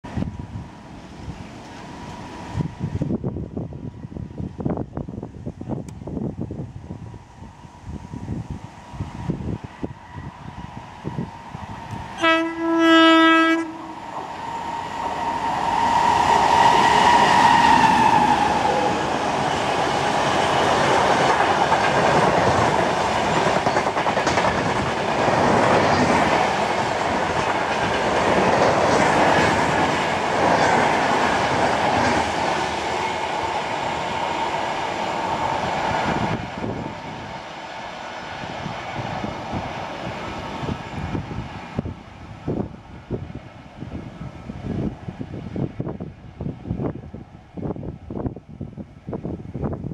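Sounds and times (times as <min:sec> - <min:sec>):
locomotive whine: 0:06.8 - 0:48.3
locomotive horn: 0:12.2 - 0:14.0
train coaches rolling with wheel clatter: 0:13.9 - 0:41.9.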